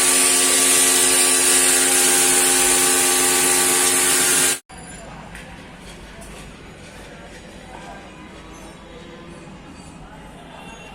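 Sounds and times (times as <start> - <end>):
pressure washer motor hum: 0.0 - 4.6.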